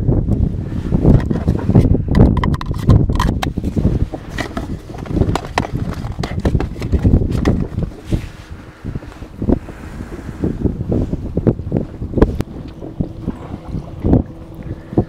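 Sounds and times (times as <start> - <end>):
wind buffeting microphone: 0.0 - 15.0
clicks and rattles: 1.1 - 8.0
rummaging in plastic tackle box: 1.1 - 8.2.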